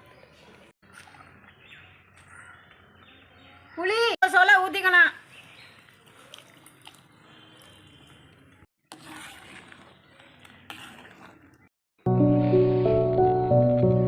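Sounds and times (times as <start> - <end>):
background music: 12.1 - 14.0.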